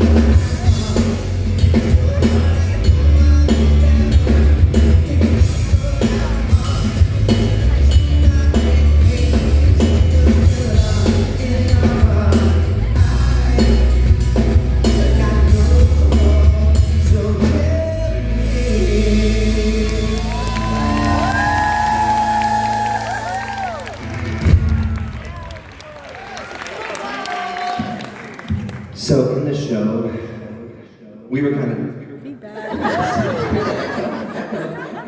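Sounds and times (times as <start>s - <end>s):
live rock band playing: 0.0s - 25.4s.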